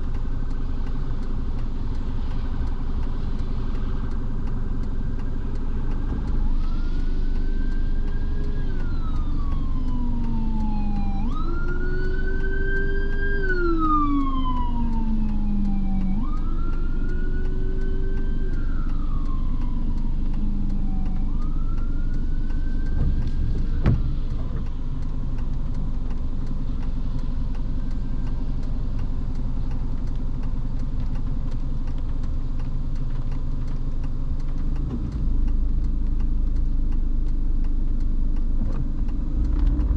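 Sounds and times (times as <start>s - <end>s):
car driving on wet road: 0.0s - 39.9s
emergency siren wailing: 0.0s - 39.9s
thump: 23.8s - 24.1s.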